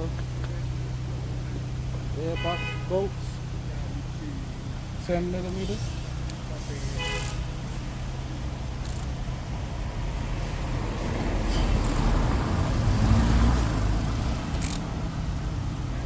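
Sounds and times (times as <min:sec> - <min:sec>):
car passing by: 0:09.9 - 0:15.5.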